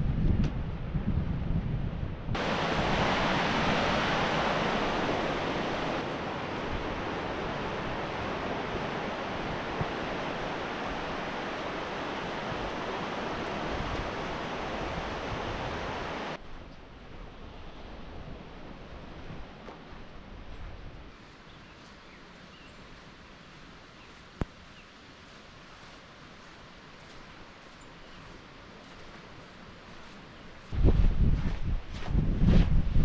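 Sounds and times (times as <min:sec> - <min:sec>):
wind rumble on microphone: 0:00.0 - 0:33.0
ocean surf breaking on a beach: 0:02.4 - 0:16.4.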